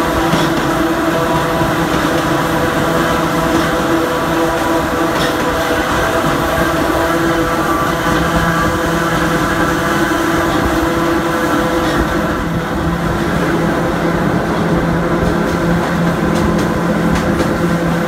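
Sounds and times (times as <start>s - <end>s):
wheel on rail rumble: 0.0s - 18.0s.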